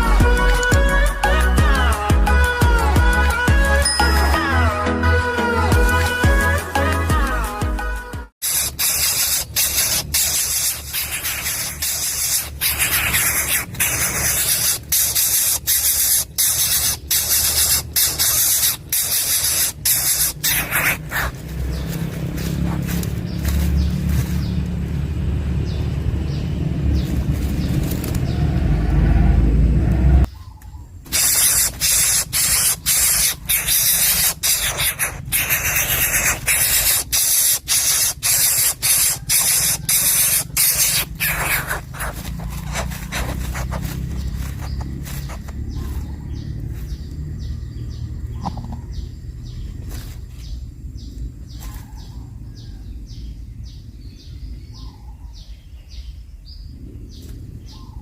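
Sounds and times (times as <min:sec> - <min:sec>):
nestling harsh hissing call: 0:08.4 - 0:21.4, 0:31.1 - 0:47.0.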